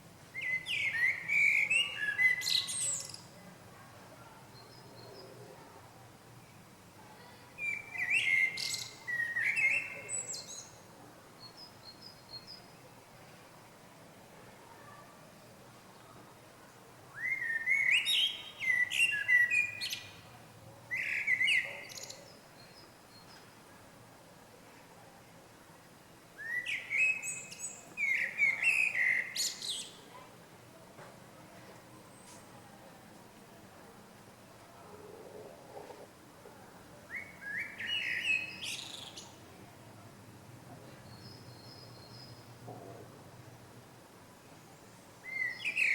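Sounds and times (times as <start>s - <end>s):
songbird chirping: 0.2s - 3.4s, 6.4s - 12.9s, 17.1s - 23.6s, 26.4s - 30.3s, 34.8s - 39.7s, 40.8s - 43.1s, 44.4s - 45.9s
small bird chirping and whistling: 26.4s - 30.0s.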